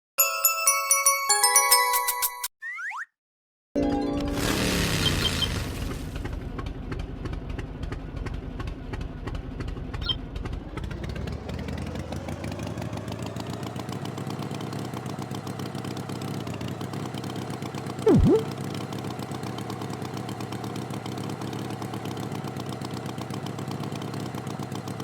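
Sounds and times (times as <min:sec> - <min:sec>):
tractor engine running: 0:04.4 - 0:18.2.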